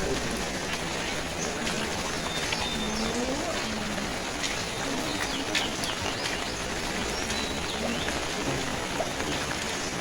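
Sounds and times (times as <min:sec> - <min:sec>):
birds chirping: 0:00.0 - 0:10.0
steady rain: 0:00.0 - 0:10.0.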